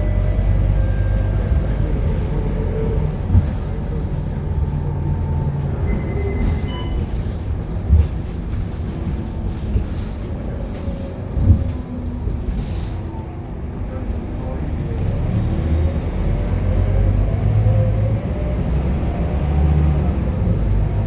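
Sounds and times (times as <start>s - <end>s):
bus engine drone: 0.0s - 21.0s
thumps through bus body: 1.3s - 13.0s.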